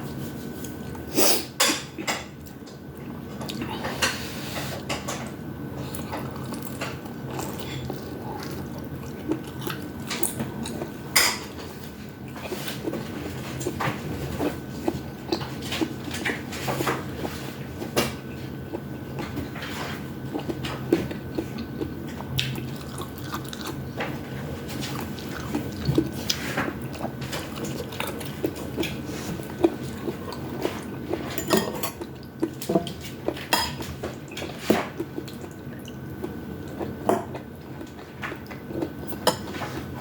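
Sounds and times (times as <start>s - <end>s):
faint steady hum: 0.0s - 40.0s
wet mouth eating sounds: 5.8s - 11.1s, 20.3s - 23.9s.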